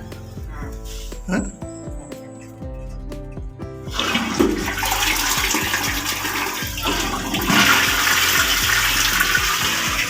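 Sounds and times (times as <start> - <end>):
toilet flushing: 3.9 - 10.0.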